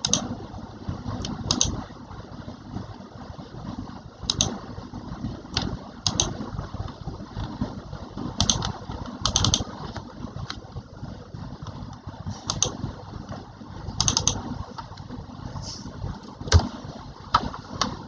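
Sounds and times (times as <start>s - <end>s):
low steady rumble: 0.0s - 18.0s
keys clicking: 14.0s - 14.4s.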